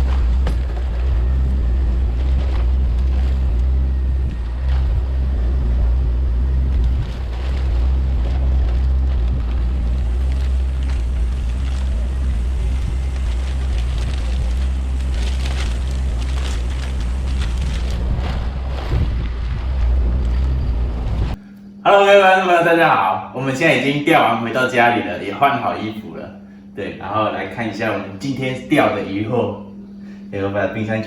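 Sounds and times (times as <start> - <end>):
wind buffeting microphone: 0.0 - 21.4
boat engine droning: 0.0 - 31.0.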